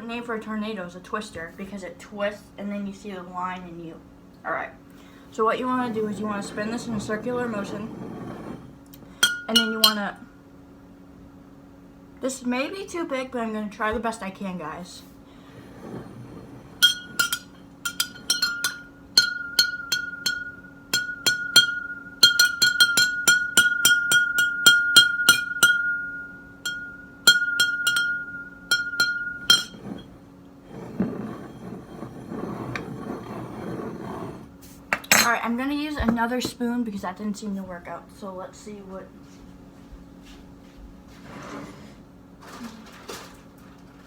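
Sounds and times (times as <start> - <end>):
spoon clinking against glass: 9.2 - 10.0, 16.8 - 30.1
glass ringing high tone: 9.2 - 10.2, 15.7 - 34.4.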